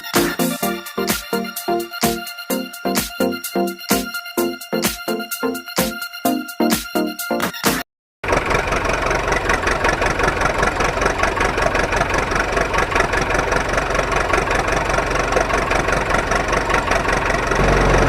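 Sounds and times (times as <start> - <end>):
small motor buzzing whir: 17.6 - 18.0.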